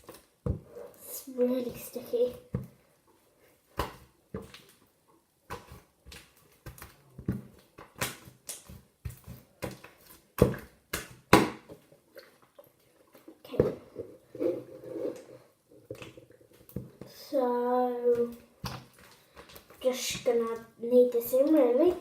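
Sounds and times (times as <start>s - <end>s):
slime squelching and popping: 3.7s - 14.0s, 15.9s - 22.0s.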